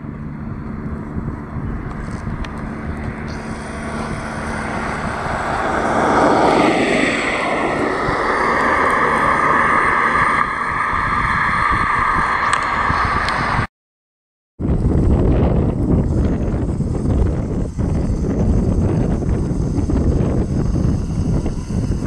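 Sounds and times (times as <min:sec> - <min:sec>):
airplane engines passing: 0:00.0 - 0:13.7, 0:14.6 - 0:22.0.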